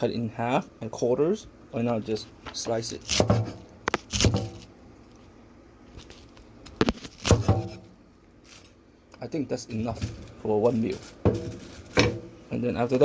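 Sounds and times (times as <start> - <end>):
knife slicing cabbage on board: 3.0 - 4.7, 6.8 - 7.8.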